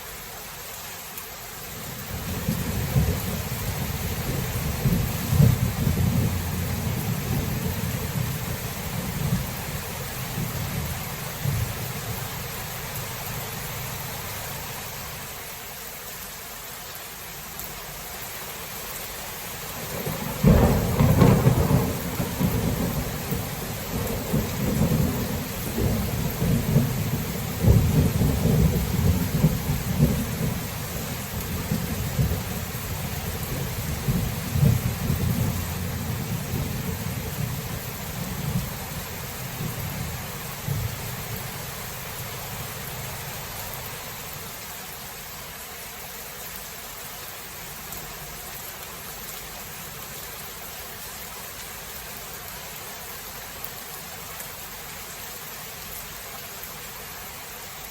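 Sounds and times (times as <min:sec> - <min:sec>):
rain hissing: 0:00.0 - 0:57.9
rolling thunder: 0:02.2 - 0:09.7, 0:19.9 - 0:41.5
sharp thunderclap: 0:19.9 - 0:30.6.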